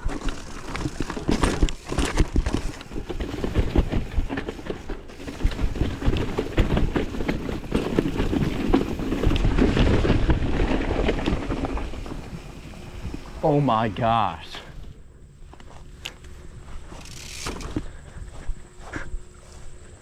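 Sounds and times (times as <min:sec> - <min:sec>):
bike clattering over rocks: 0:00.0 - 0:13.4, 0:16.9 - 0:17.8.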